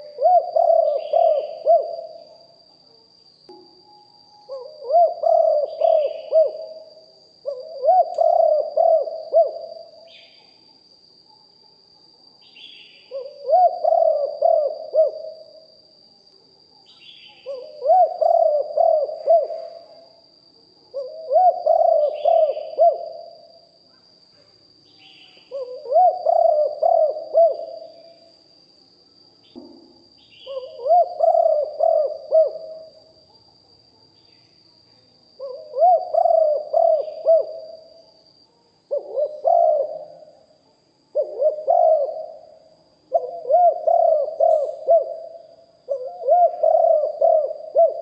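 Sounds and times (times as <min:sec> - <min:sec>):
doves cooing: 0:00.0 - 0:02.3, 0:04.5 - 0:10.1, 0:13.1 - 0:15.5, 0:17.4 - 0:19.8, 0:20.9 - 0:23.4, 0:25.5 - 0:27.9, 0:30.4 - 0:33.0, 0:35.4 - 0:37.9, 0:38.9 - 0:40.4, 0:41.2 - 0:48.0.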